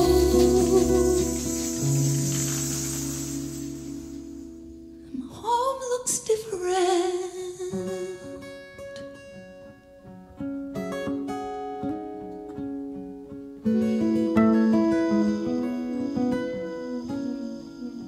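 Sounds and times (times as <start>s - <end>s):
held wavering melodic note: 0.0s - 4.9s, 13.7s - 18.0s
guitar picking notes and chords: 0.0s - 5.2s, 7.6s - 18.0s.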